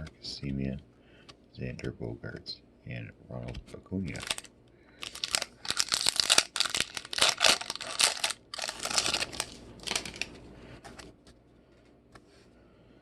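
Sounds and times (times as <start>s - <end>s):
foil wrapper tearing and crinkling: 4.1s - 10.4s.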